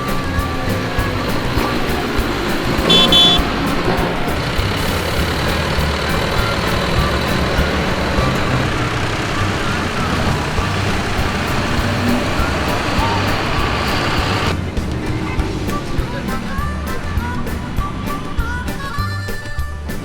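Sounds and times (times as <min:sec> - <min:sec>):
tractor engines running: 0:00.0 - 0:20.0
short high beep: 0:02.9 - 0:03.5.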